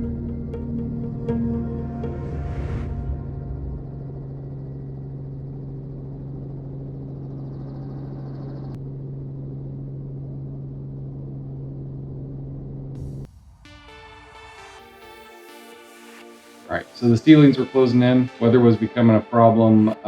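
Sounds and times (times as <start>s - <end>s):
helicopter engine and rotors drone: 2.9s - 13.3s.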